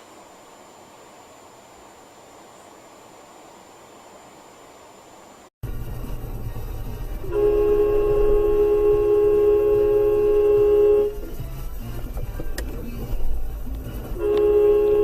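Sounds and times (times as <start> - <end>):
engine and road rumble: 5.4 - 15.0
vehicle horn blast: 7.2 - 11.4, 14.0 - 15.0.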